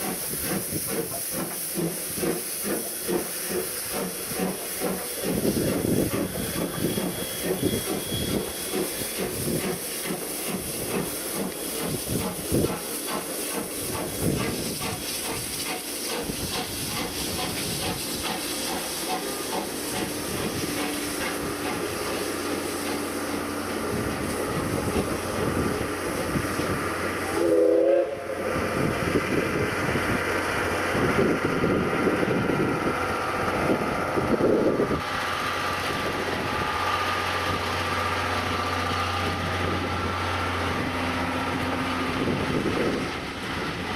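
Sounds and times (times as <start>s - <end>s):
steam hissing: 0.0s - 43.9s
steam locomotive exhaust beat: 0.0s - 43.9s
steam whistle blast: 27.2s - 28.8s.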